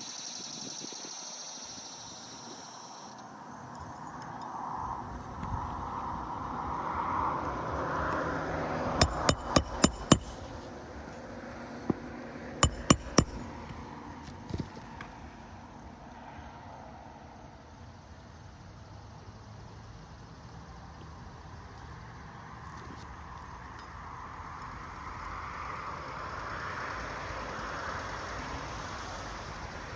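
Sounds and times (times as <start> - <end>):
hammer driving nails: 9.0 - 10.7, 12.6 - 13.8
light hammer taps: 9.0 - 10.7, 12.6 - 13.8.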